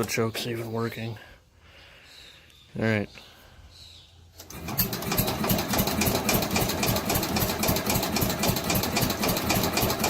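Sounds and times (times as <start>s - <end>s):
engine cranking by starter: 4.4s - 10.0s.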